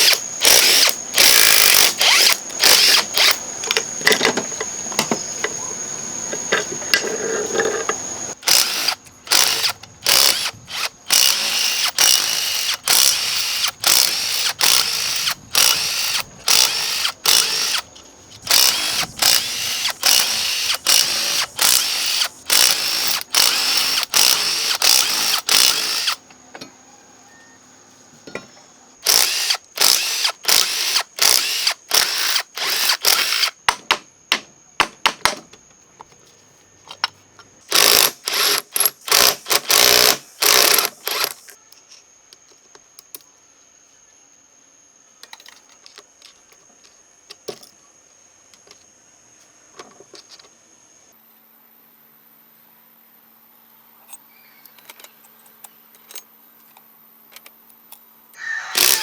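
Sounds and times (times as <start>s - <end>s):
power tool whining in bursts: 0.0s - 3.5s, 18.4s - 26.2s, 58.7s - 59.0s.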